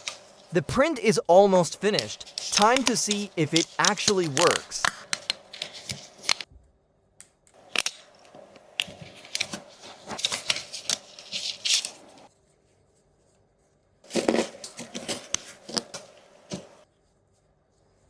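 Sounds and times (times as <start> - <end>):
plastic parts clicking and scraping: 1.9 - 6.5, 14.1 - 16.8.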